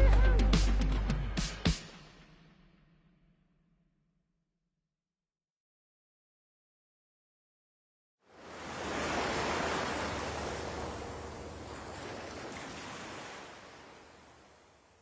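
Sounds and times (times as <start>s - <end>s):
rush of surf-like noise: 8.4s - 14.3s.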